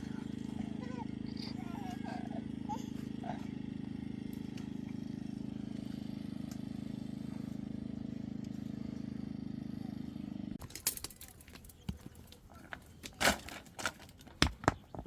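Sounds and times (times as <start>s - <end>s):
small engine running: 0.0s - 11.9s
clicks and crackles: 10.6s - 15.0s.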